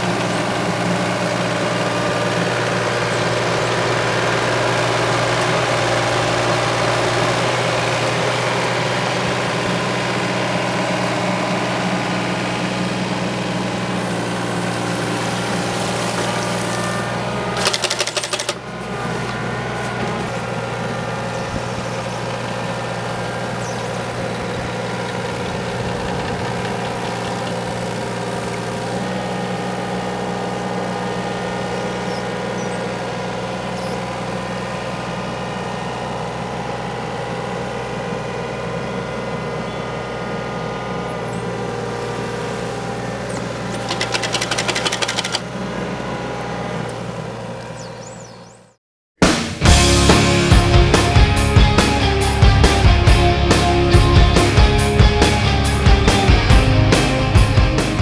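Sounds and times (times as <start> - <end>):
excavator engine running: 0.0 - 58.0
mower knives chattering: 15.8 - 18.7, 43.6 - 45.5
rapid clacks: 17.6 - 18.6, 43.6 - 45.5.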